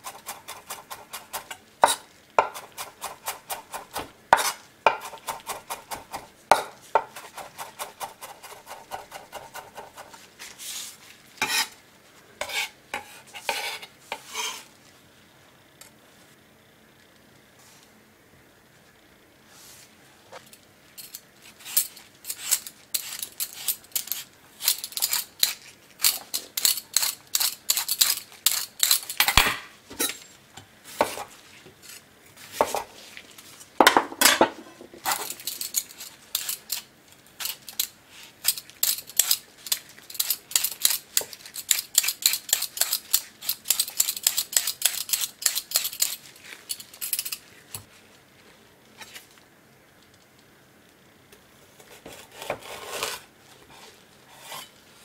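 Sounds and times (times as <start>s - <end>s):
peeler scraping ginger skin: 21.5s - 29.2s, 35.1s - 47.8s.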